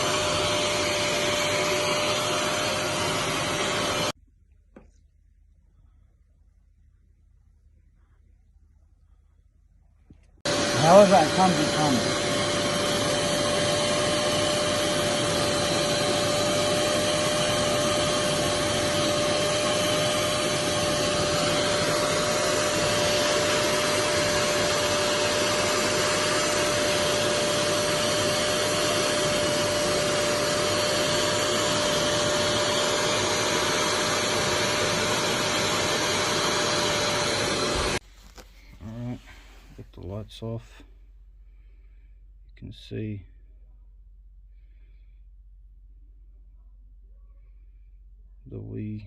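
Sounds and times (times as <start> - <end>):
carpet extractor vacuum motor: 0.0 - 4.2, 10.4 - 38.0.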